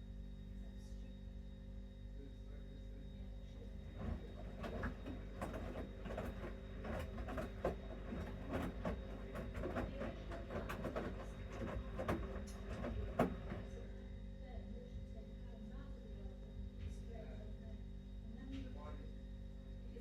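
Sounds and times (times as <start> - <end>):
washing machine motor hum: 0.0 - 20.0
wet laundry tumbling and sloshing: 4.0 - 13.7.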